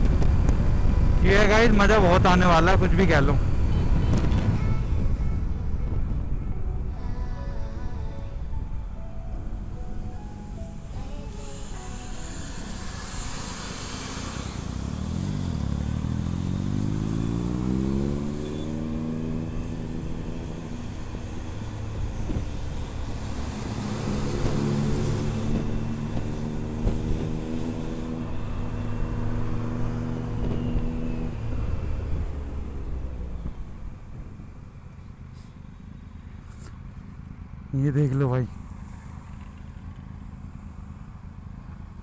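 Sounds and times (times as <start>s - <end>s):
wind rushing: 0.0s - 18.4s
motorcycle engine accelerating: 12.0s - 33.8s.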